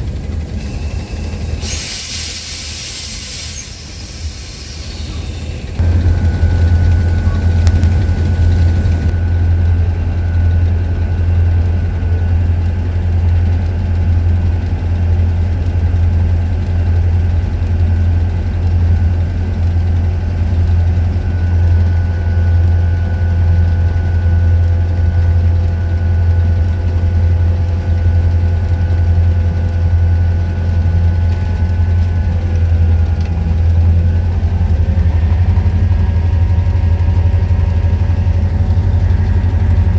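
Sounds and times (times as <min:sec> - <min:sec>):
locomotive diesel engine idling: 0:00.0 - 0:39.9.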